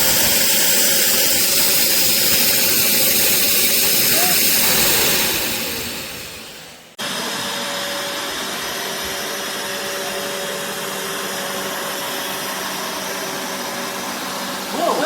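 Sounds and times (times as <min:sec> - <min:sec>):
carpet cleaner suction motor: 0:07.0 - 0:15.0.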